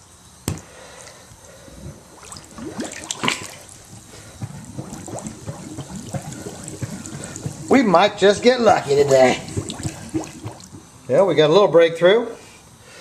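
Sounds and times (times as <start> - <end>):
water sloshing and gurgling: 1.7 - 11.1
bubbling chirps: 1.8 - 11.1
water splashes: 2.0 - 11.0.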